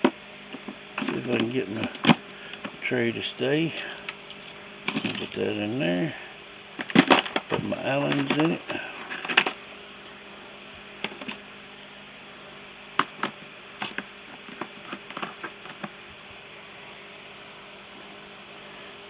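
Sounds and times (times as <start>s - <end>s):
faint steady hum: 0.0s - 19.0s
small tools clicking and clinking: 0.6s - 2.8s, 3.7s - 5.9s, 6.8s - 9.6s, 11.0s - 11.4s, 13.0s - 15.9s.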